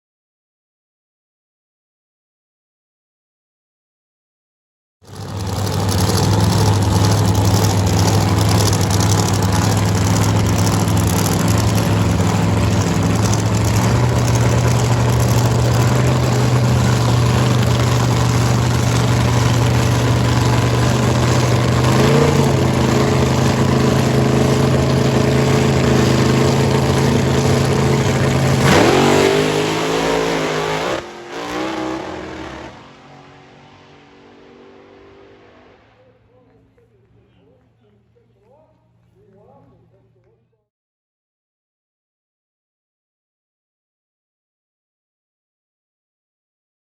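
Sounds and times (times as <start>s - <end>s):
drag racing engine revving: 5.1s - 36.3s.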